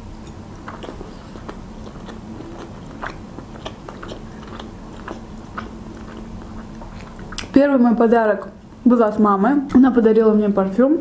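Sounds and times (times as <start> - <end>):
person chewing: 0.2 - 7.6.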